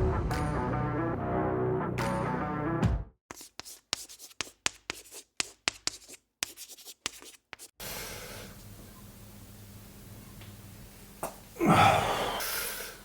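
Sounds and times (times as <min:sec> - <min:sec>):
music: 0:00.0 - 0:03.1
sharp scratching strokes: 0:03.3 - 0:07.8.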